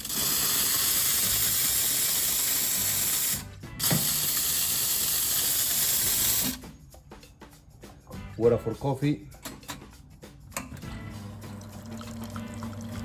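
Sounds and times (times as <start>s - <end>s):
espresso machine steam wand hissing: 0.0s - 6.6s.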